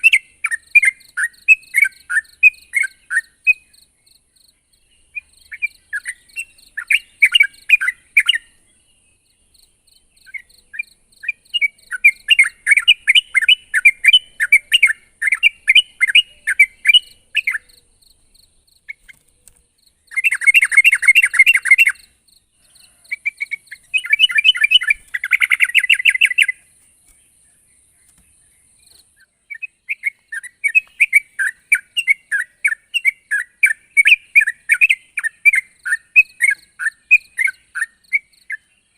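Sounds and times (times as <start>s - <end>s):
bulbul singing: 0.0s - 38.9s.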